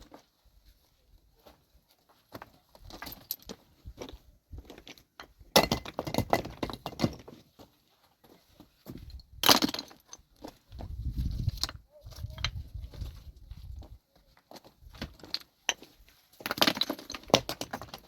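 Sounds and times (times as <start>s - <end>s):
rocks clattering and cracking: 2.4s - 7.7s, 8.9s - 18.0s.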